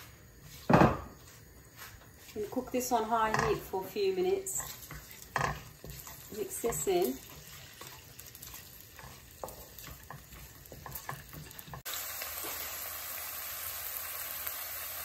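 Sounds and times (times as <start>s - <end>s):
wooden spatula scraping pan: 1.9s - 11.9s
spices sizzling in hot oil: 2.1s - 15.0s.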